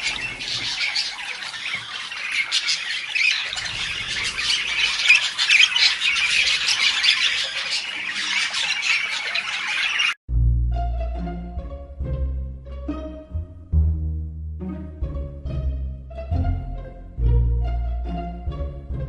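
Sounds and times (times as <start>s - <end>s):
parrot squawking: 0.0s - 10.2s.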